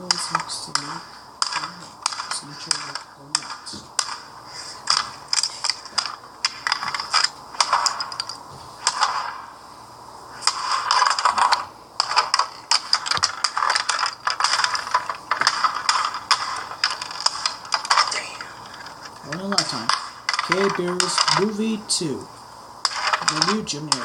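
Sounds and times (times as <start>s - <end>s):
plastic toy mechanism ratcheting: 10.9s - 21.8s, 22.9s - 24.0s.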